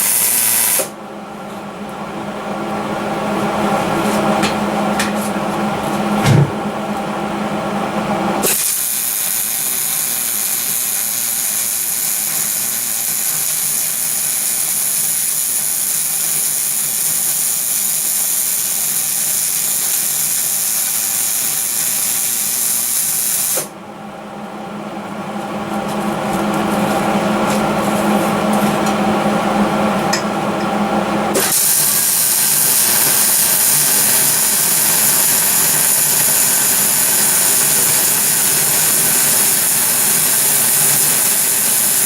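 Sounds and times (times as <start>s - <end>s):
arc welding crackling hiss: 0.0s - 0.9s, 8.4s - 23.7s, 31.4s - 42.0s
brief thump: 6.2s - 6.6s.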